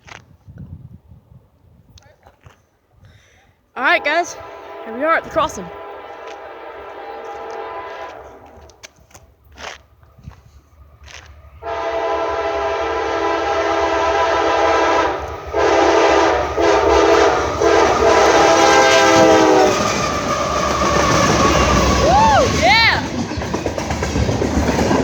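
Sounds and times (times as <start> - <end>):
locomotive air horn blasts: 3.8 - 8.8, 11.6 - 22.5
train rumble: 3.8 - 25.0.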